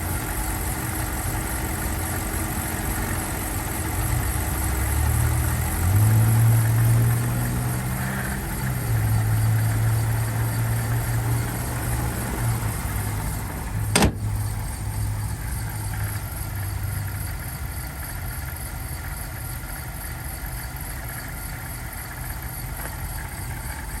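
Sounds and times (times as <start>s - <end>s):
car engine idling: 0.0s - 24.0s
sharp knock: 13.9s - 14.3s.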